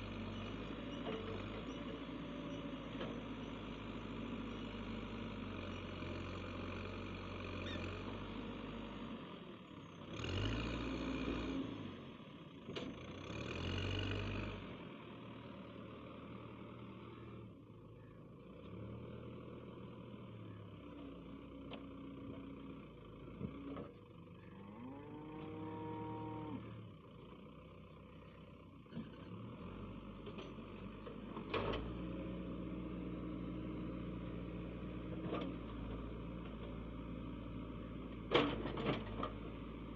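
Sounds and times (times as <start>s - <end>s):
heavy diesel engine revving: 10.0s - 12.0s.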